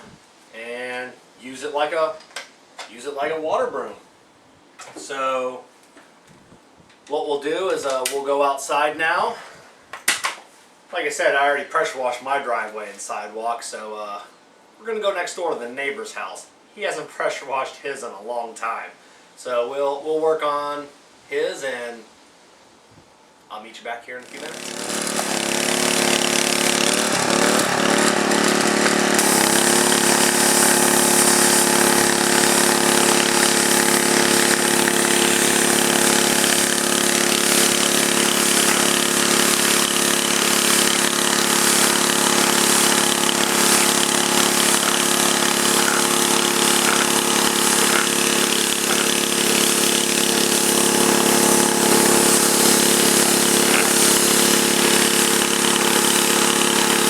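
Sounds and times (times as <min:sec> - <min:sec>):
pressure washer engine running: 0:24.3 - 0:57.0
hiss of water spray: 0:29.2 - 0:57.0.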